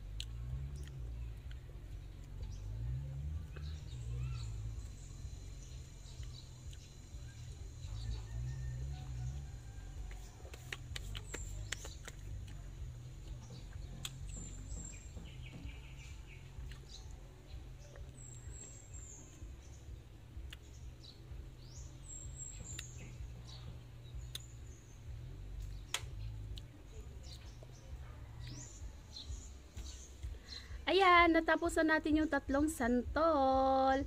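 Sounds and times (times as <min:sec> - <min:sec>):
birds chirping: 0:00.0 - 0:34.0
low outdoor rumble: 0:00.0 - 0:34.0
sharp clicks: 0:25.6 - 0:26.8.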